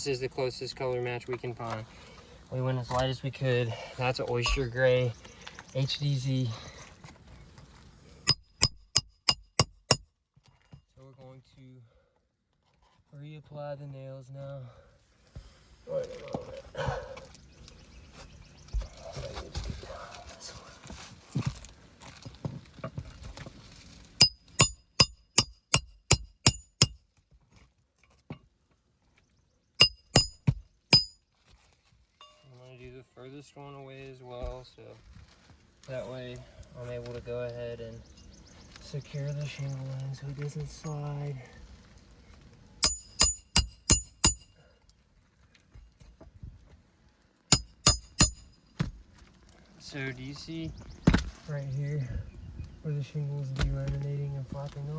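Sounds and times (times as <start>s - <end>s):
hammer striking roofing nails: 8.3s - 10.0s, 24.2s - 27.1s, 29.8s - 31.2s, 42.8s - 44.6s, 47.5s - 49.0s.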